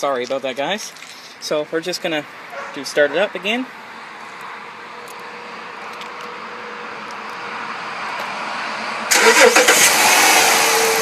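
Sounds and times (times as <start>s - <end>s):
car engine starting up: 8.6s - 11.0s.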